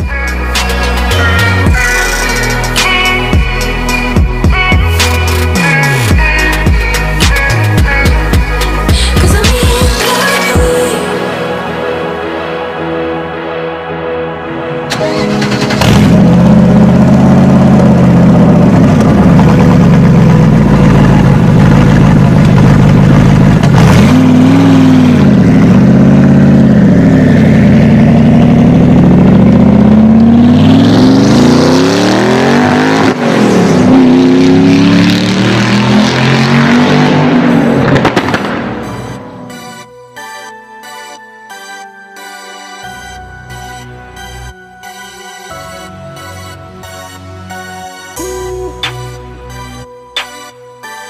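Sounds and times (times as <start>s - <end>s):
sports car engine revving: 15.0s - 39.4s.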